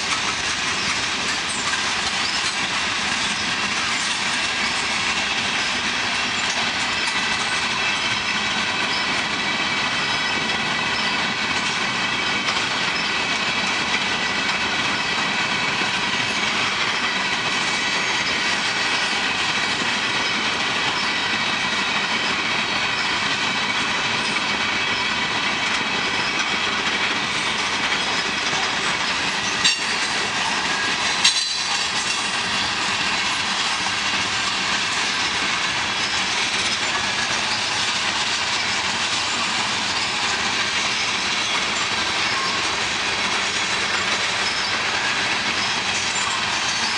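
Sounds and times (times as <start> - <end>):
train wheels on rails: 0.0 - 46.9
sharp metal clanks: 29.6 - 30.2, 31.2 - 32.3.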